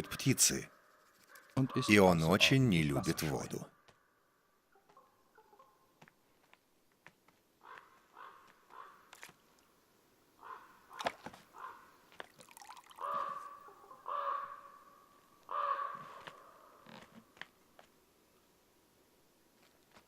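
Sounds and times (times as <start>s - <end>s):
crows cawing: 0.0s - 2.3s, 7.6s - 9.2s, 10.4s - 12.0s, 12.8s - 16.8s.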